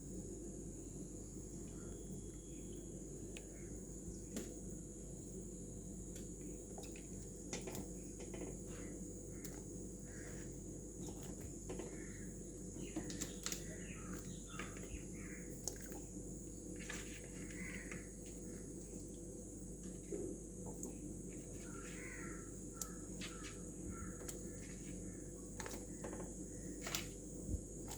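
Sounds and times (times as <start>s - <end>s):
insects buzzing: 0.0s - 27.9s
birds calling: 7.7s - 19.1s, 20.8s - 27.3s.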